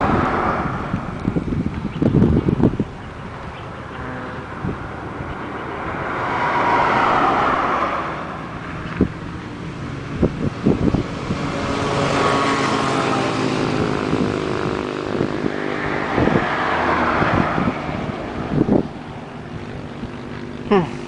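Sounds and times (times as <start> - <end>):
motorcycle engine running: 9.0 - 16.4.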